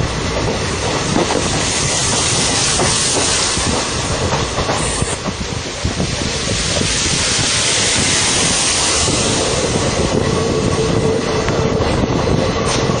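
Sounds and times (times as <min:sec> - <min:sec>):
train rush and rumble: 0:00.0 - 0:13.0.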